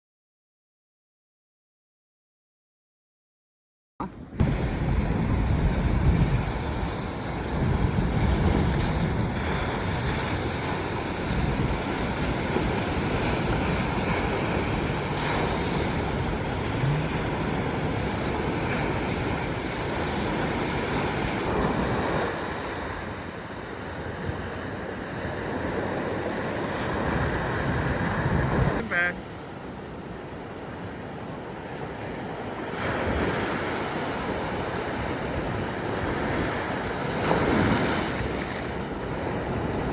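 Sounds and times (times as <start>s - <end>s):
ocean surf: 4.0s - 39.9s
wind buffeting microphone: 4.3s - 39.9s.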